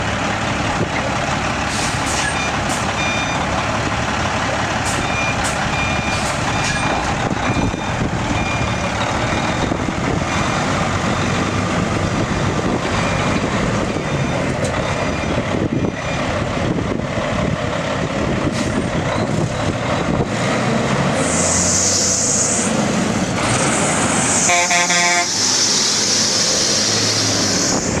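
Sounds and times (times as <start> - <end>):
diesel truck engine running: 0.0 - 28.0
loud air hissing: 21.2 - 22.8, 23.6 - 28.0
brief horn toot: 24.4 - 25.4.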